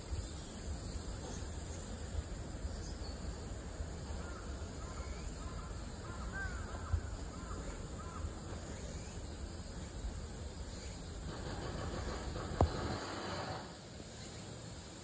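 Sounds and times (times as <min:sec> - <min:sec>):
distant bird calling: 0:00.3 - 0:14.6.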